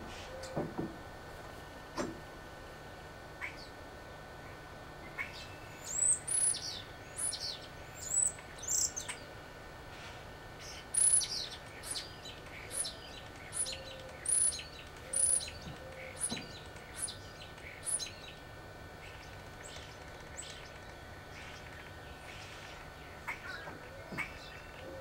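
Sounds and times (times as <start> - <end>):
faint background hum: 0.0 - 25.0
small bird chirping: 5.2 - 9.3, 10.6 - 18.4.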